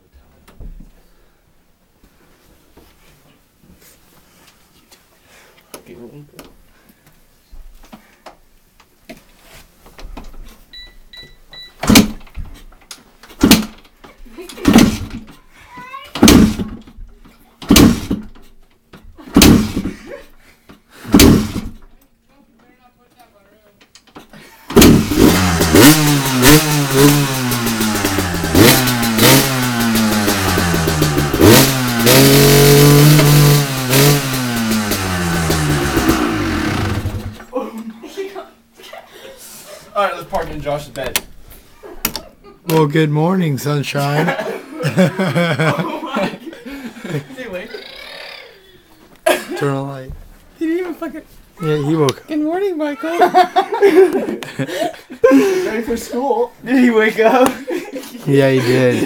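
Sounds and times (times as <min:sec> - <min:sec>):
motorcycle engine firing: 0:14.6 - 0:15.2, 0:16.2 - 0:16.8, 0:17.7 - 0:18.3, 0:19.4 - 0:19.9, 0:21.1 - 0:21.8, 0:24.7 - 0:37.5.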